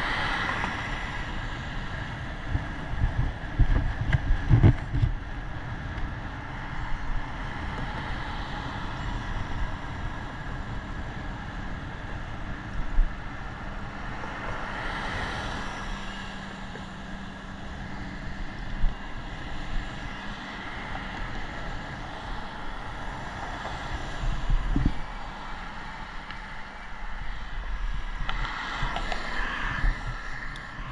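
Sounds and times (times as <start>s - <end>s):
road traffic: 0.0s - 30.9s
wind noise: 0.0s - 30.9s.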